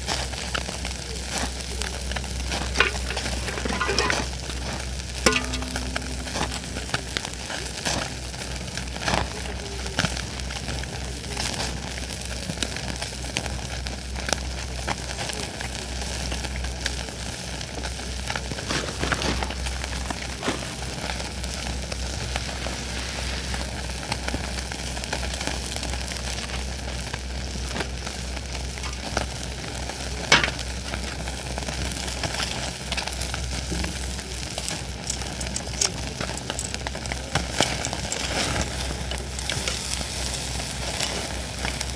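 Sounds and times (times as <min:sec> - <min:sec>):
food sizzling: 0:01.6 - 0:11.1, 0:17.9 - 0:41.9
fire crackling and popping: 0:17.6 - 0:41.9.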